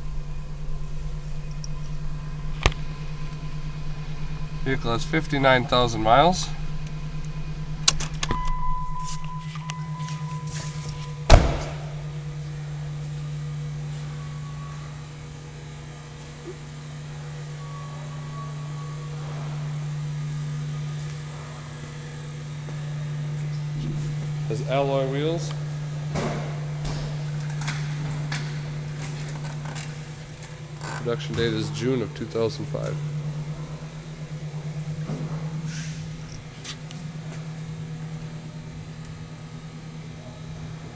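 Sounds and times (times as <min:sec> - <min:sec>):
car engine idling: 0:00.0 - 0:40.9
steady low hum: 0:00.0 - 0:40.9
car door slamming: 0:11.3 - 0:12.0.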